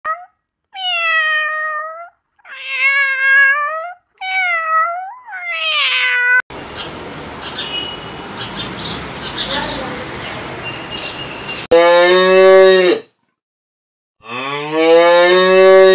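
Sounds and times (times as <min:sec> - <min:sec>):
cat meowing: 0:00.1 - 0:06.4.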